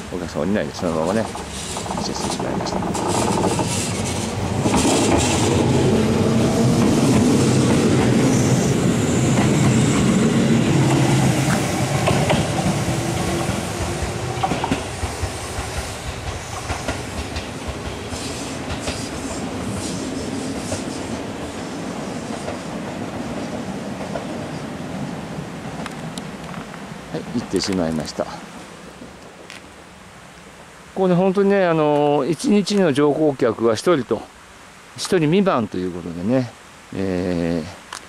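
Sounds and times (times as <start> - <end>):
electric train passing: 0.0 - 27.6
wheels clicking over rail joints: 0.7 - 5.8, 9.3 - 19.1.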